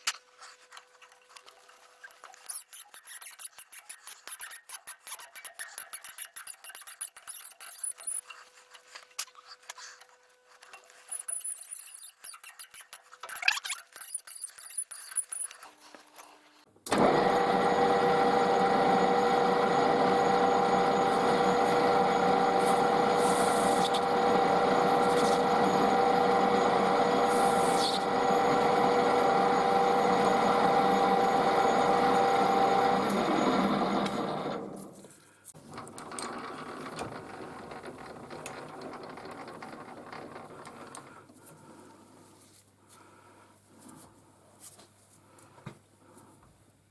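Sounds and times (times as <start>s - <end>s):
power tool running: 16.9s - 41.1s.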